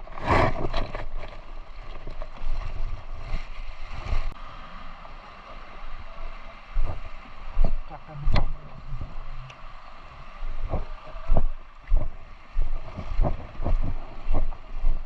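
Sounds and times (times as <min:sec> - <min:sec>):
steady rushing noise: 0:04.1 - 0:15.0
wind buffeting microphone: 0:10.2 - 0:15.0.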